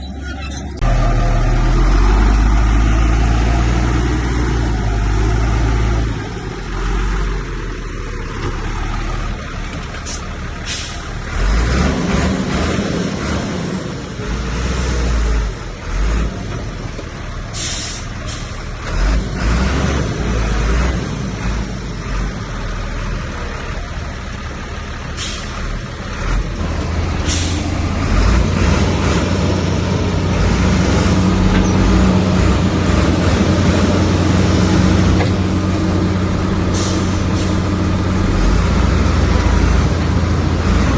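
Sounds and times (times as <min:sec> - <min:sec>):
heavy diesel machinery rumbling: 0:00.0 - 0:40.9
short sharp hisses: 0:17.6 - 0:18.6.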